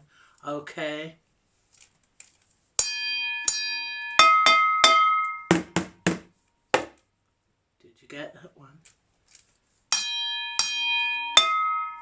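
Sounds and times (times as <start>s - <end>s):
ringing metal pan hits: 2.8s - 6.0s, 9.9s - 12.0s.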